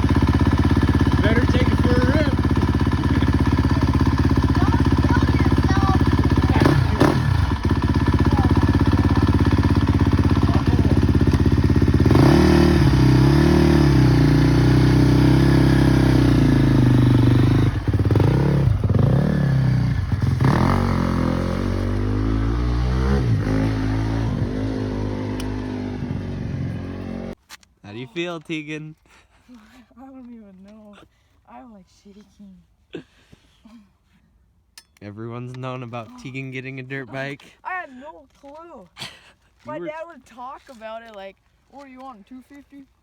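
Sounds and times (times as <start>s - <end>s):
dirt bike engine revving: 0.0s - 27.4s.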